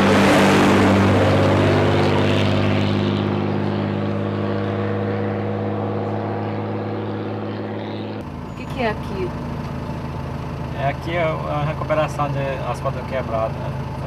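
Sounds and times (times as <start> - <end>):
rush of noise: 0.0 - 8.2
heavy vehicle engine running: 0.0 - 14.0.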